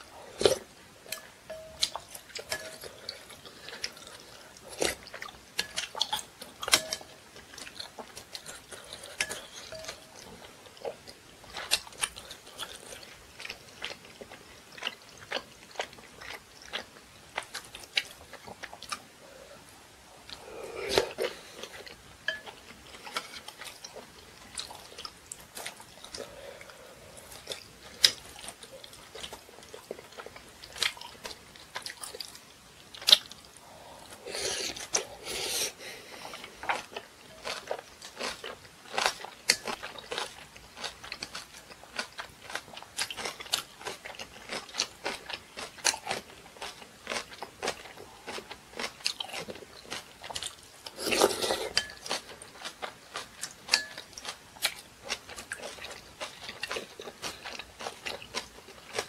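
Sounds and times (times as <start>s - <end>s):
person chewing and biting food: 20.2s - 59.0s.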